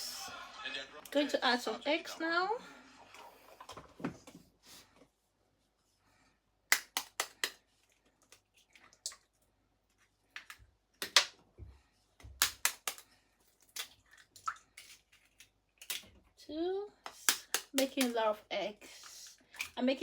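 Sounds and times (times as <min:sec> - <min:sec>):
eggs cracking against bowl: 0:06.7 - 0:07.6, 0:10.3 - 0:11.4, 0:12.3 - 0:16.2, 0:17.1 - 0:18.2.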